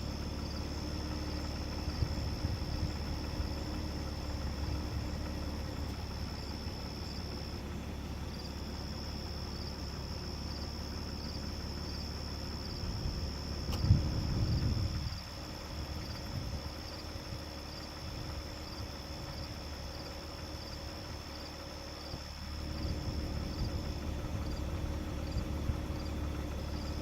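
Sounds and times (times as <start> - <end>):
insects trilling: 0.0 - 27.0
low rumble: 12.6 - 16.8.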